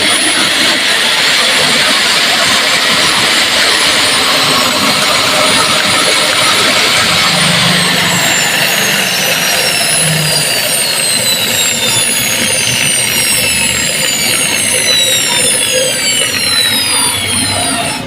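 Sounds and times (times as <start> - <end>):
electric grinder motor whining: 0.0 - 18.0.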